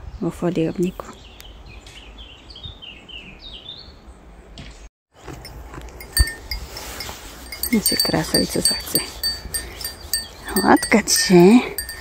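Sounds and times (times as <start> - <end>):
faint metallic tinkling: 5.4 - 12.0.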